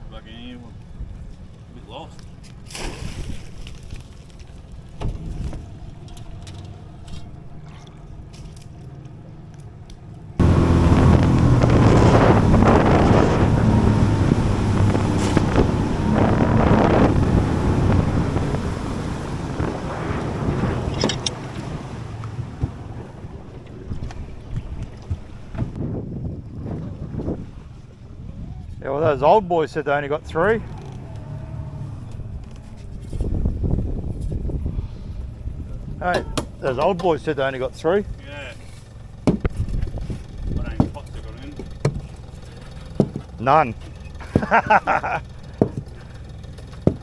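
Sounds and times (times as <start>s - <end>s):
outboard motor: 0.0s - 47.0s
wind on microphone: 10.4s - 29.2s, 31.7s - 36.6s, 39.4s - 40.8s.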